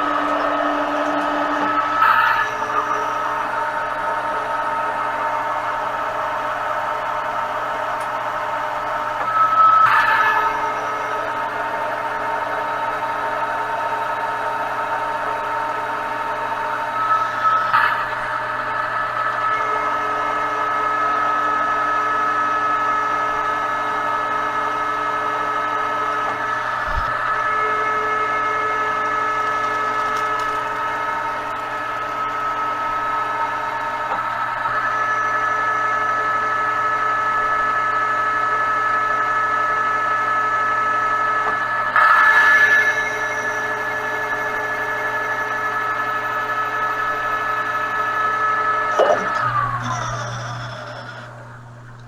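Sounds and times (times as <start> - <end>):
metal lathe whining: 0.0 - 36.8, 48.8 - 52.0.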